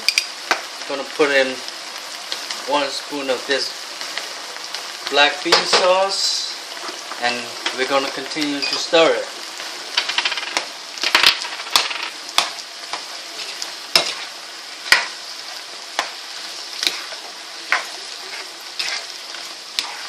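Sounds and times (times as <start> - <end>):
food sizzling in a pan: 0.0 - 20.0
utensil scraping a pan: 13.4 - 16.1, 16.8 - 20.0.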